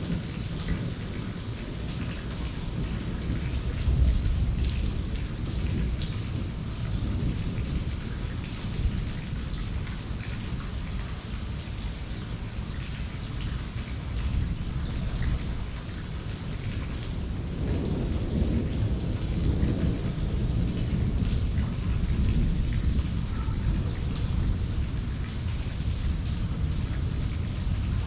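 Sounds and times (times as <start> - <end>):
low rumble of thunder: 0.0 - 28.0
raindrops ticking close by: 0.0 - 28.0
steady rain falling: 0.0 - 28.0.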